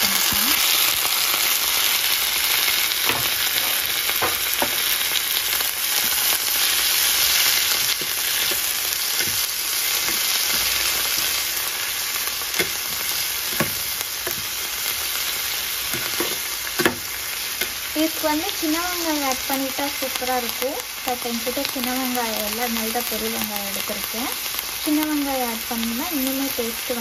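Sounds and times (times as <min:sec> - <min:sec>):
vegetables sizzling in hot oil: 0:00.0 - 0:27.0
metal spoon scraping a pan: 0:03.1 - 0:04.9, 0:07.0 - 0:17.8.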